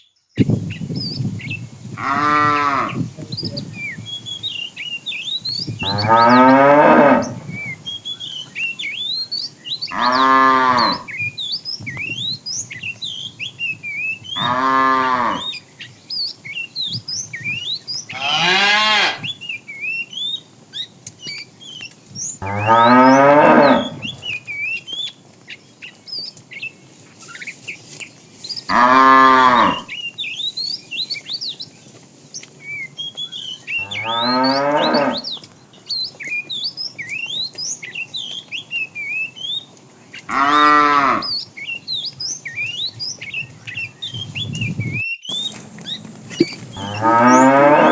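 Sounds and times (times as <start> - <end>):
small birds chirping: 0.0 - 47.9
cows mooing: 2.0 - 3.1, 5.8 - 7.6, 9.9 - 11.1, 14.4 - 15.5, 18.1 - 19.3, 22.4 - 24.3, 28.7 - 29.9, 33.8 - 35.4, 40.3 - 41.4, 45.3 - 47.9.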